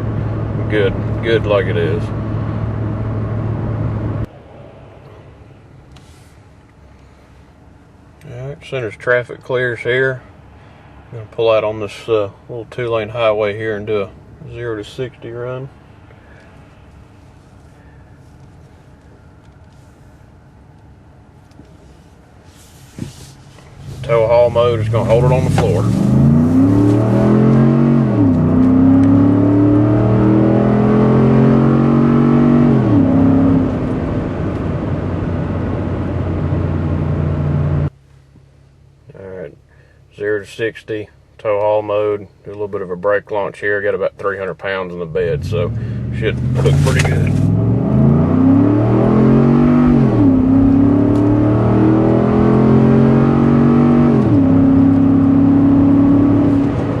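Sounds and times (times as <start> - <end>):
truck engine accelerating hard: 23.8 - 37.9, 45.1 - 57.0.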